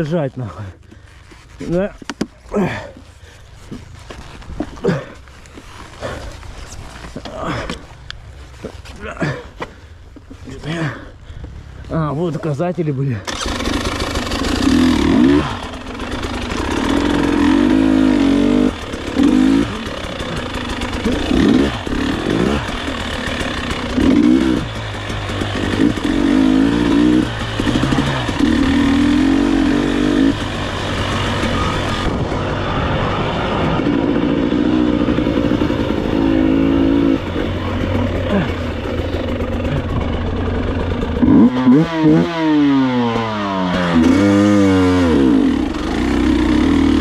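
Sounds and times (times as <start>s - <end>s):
motorcycle engine revving: 13.2s - 47.0s.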